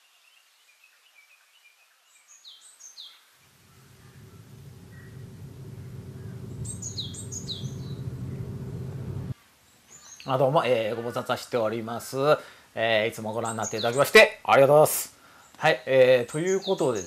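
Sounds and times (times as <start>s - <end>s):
birds chirping: 3.5s - 9.4s
car engine hum approaching: 3.6s - 9.4s.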